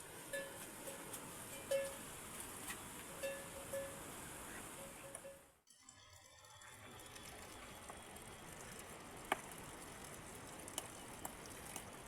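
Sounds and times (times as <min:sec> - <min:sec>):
faint rain hiss: 0:00.0 - 0:05.6, 0:06.3 - 0:12.0
sharp ticks of raindrops: 0:05.9 - 0:12.0.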